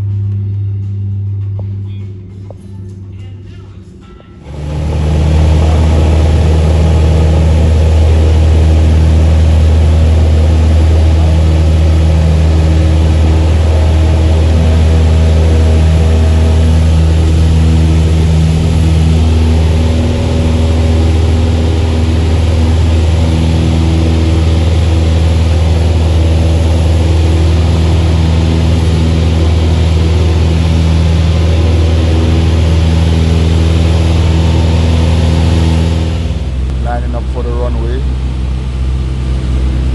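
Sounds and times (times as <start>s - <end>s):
engine running with low hum: 0.0s - 39.9s
steady tones: 0.0s - 39.9s.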